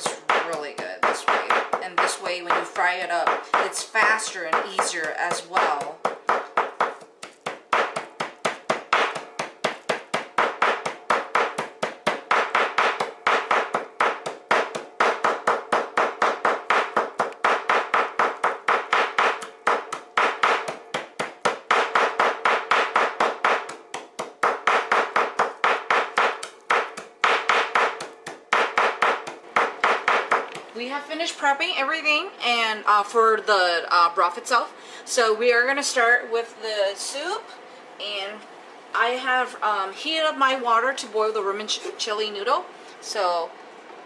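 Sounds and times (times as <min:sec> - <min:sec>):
knife chopping on cutting board: 0:04.4 - 0:30.7.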